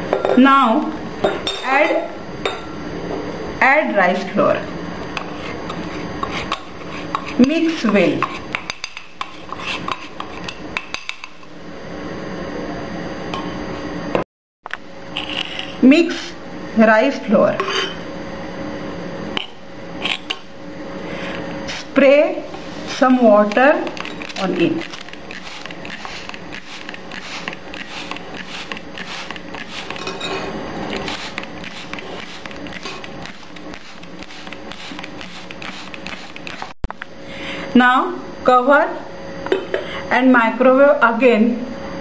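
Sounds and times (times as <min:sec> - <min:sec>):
steady hum: 0:00.0 - 0:42.0
spoon scraping a bowl: 0:05.2 - 0:11.5, 0:15.1 - 0:16.4, 0:17.6 - 0:18.0, 0:19.4 - 0:20.5, 0:21.7 - 0:36.8.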